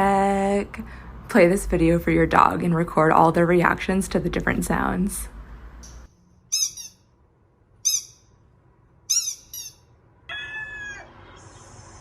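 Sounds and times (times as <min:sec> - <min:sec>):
high-pitched squeaky chirps: 0:05.8 - 0:07.2, 0:07.8 - 0:08.4, 0:09.0 - 0:11.9.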